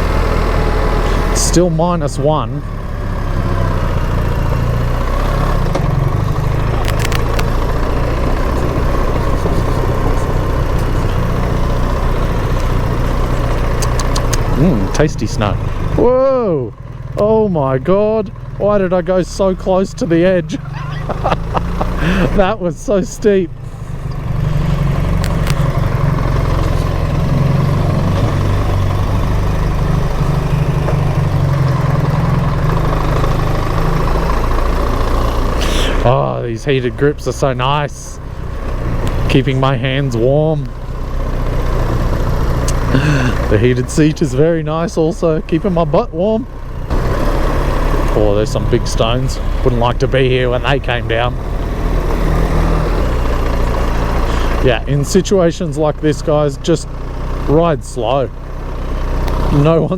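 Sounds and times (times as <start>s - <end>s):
motorcycle engine running at low revs: 0.0s - 59.9s
short clicks: 13.7s - 14.6s.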